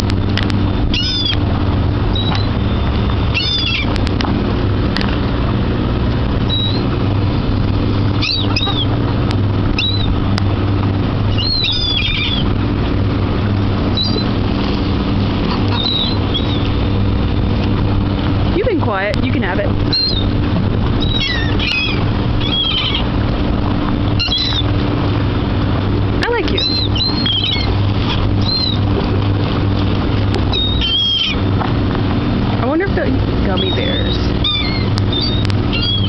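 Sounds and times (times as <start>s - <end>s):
low engine drone: 0.0s - 36.0s
seagulls crying: 0.8s - 4.0s, 6.4s - 7.0s, 8.0s - 10.3s, 11.1s - 12.6s, 13.7s - 14.5s, 15.3s - 17.5s, 19.8s - 24.9s, 26.4s - 29.6s, 30.4s - 31.6s, 33.4s - 36.0s.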